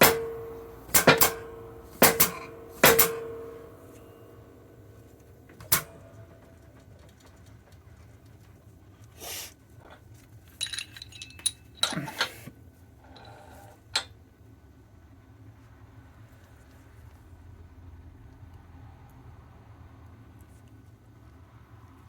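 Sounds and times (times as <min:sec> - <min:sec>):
metallic clicks of tools: 0:00.0 - 0:04.4, 0:05.2 - 0:06.4, 0:10.6 - 0:12.4
steel parts clinking: 0:00.0 - 0:06.6, 0:10.5 - 0:12.5, 0:13.1 - 0:14.1
faint steady hum: 0:00.0 - 0:22.0.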